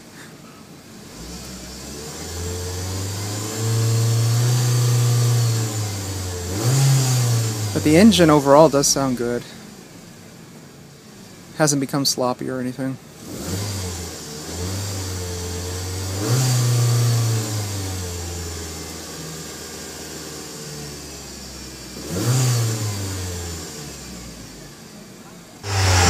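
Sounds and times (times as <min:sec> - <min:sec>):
car engine revving and idling: 0:01.0 - 0:09.6, 0:13.2 - 0:24.8, 0:25.6 - 0:26.0.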